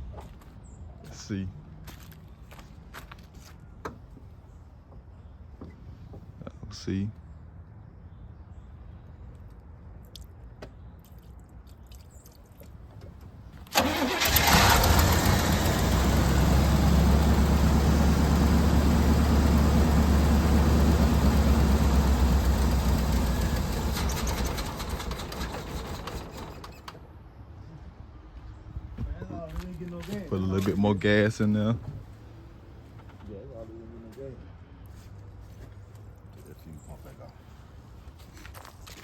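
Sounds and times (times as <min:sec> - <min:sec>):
car engine starting and running: 0:13.6 - 0:27.0.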